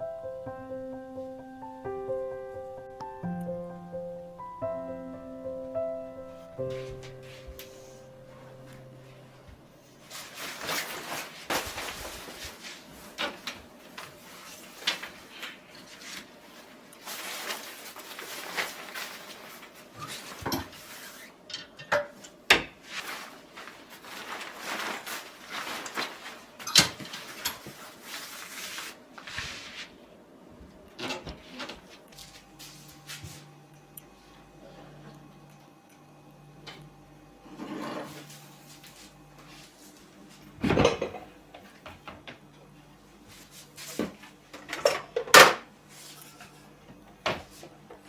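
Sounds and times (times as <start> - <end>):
rustling and scraping: 9.9 - 21.4, 22.8 - 30.0, 37.5 - 40.5.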